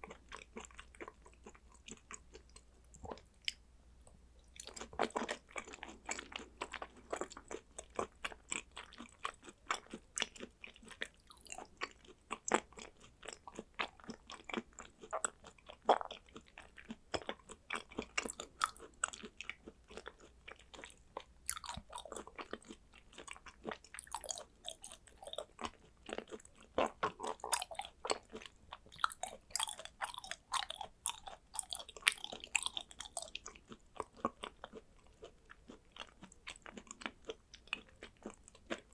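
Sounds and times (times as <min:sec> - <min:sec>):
person chewing wetly: 0:00.0 - 0:03.6, 0:04.4 - 0:38.9.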